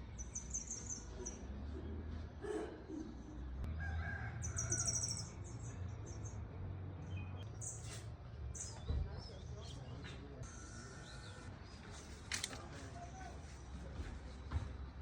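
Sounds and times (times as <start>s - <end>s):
small birds chirping: 0.0s - 2.2s, 4.4s - 15.0s
distant rooster crowing: 3.7s - 5.2s.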